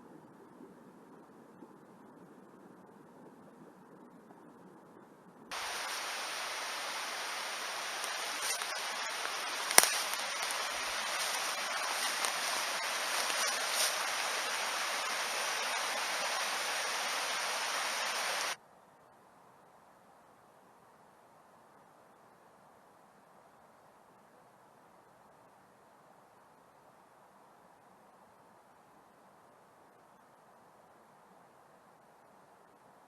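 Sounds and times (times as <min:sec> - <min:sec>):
mountain stream rushing: 0:05.5 - 0:18.6.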